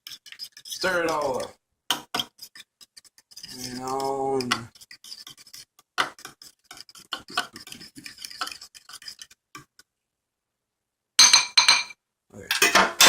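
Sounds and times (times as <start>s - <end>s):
utensil stirring egg in bowl: 0.0s - 9.9s.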